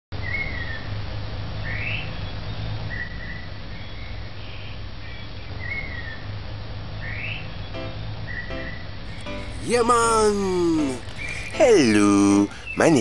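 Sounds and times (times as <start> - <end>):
bird whistling: 9.1 - 13.0.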